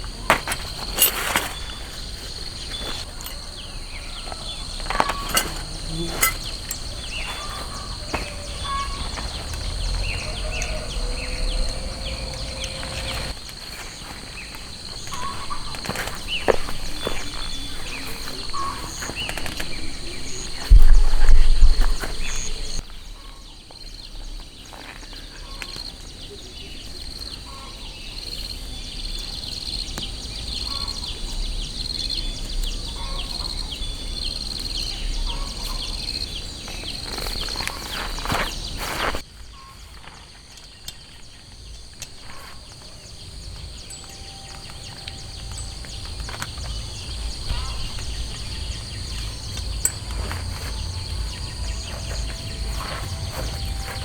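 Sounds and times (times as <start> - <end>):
low rumble: 8.5 - 13.4
high-pitched chirping: 43.6 - 54.0.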